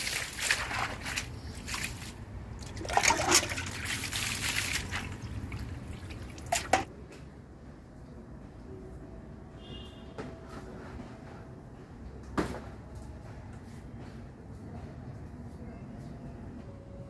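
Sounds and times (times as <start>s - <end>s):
water sloshing in a vessel: 0.0s - 6.9s.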